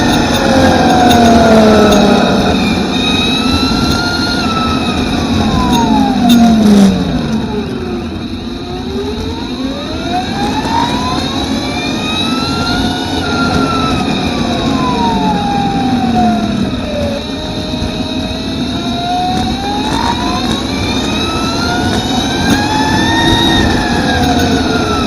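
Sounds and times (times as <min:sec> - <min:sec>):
rushing noise: 0:00.0 - 0:07.2
electric motorbike motor whining: 0:00.0 - 0:25.0.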